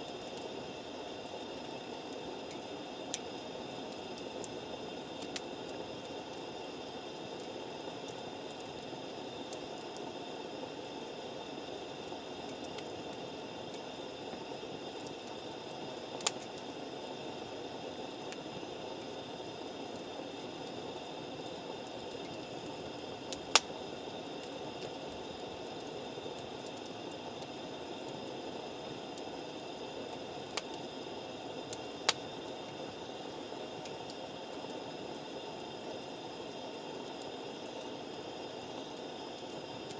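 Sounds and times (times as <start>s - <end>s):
campfire hissing: 0.0s - 39.9s
wood crackling pops: 23.3s - 23.7s.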